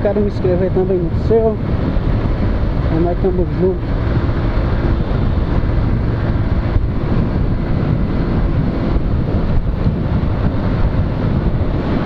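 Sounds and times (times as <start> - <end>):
motorcycle engine running: 0.0 - 12.0
wind on microphone: 0.0 - 12.0.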